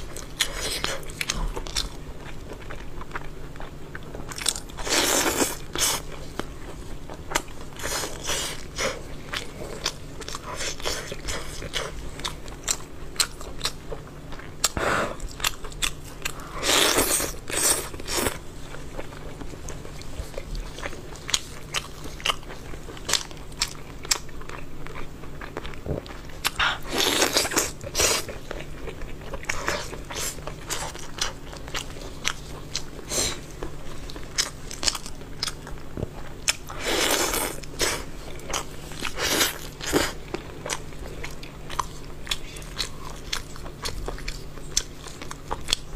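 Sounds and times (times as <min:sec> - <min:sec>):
crunchy chewing of chicken: 0:00.0 - 0:45.9.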